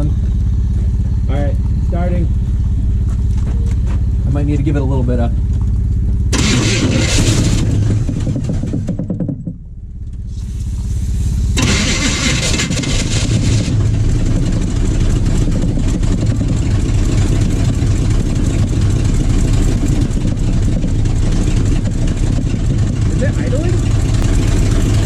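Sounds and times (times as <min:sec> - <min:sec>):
truck engine starting and revving: 0:06.3 - 0:09.1, 0:10.3 - 0:25.0.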